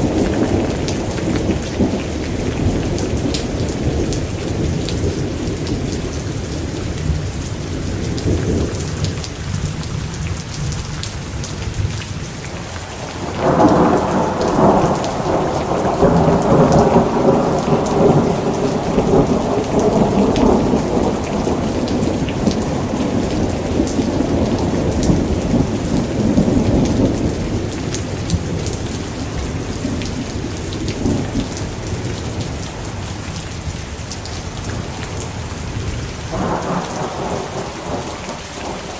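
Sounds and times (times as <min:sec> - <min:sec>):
steady rain: 0:00.0 - 0:38.9
rolling thunder: 0:13.0 - 0:33.1, 0:34.6 - 0:38.9.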